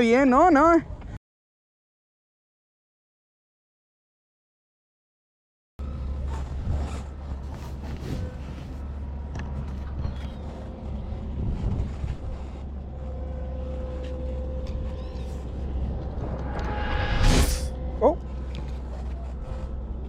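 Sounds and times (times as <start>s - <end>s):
outdoor background noise: 0.0s - 1.2s, 5.8s - 20.0s
constant low rumble: 5.8s - 20.0s.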